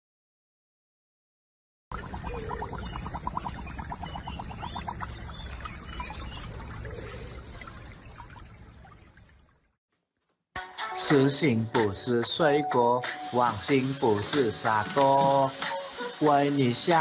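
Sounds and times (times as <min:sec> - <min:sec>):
water trickling: 0:01.9 - 0:09.8, 0:13.2 - 0:17.0.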